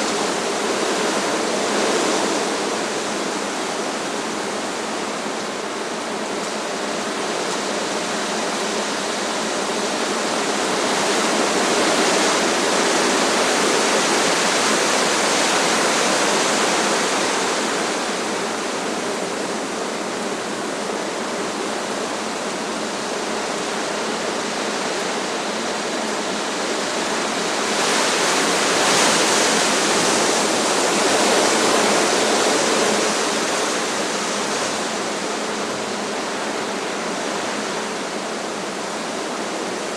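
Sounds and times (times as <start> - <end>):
strong wind rushing through trees: 0.0 - 39.9.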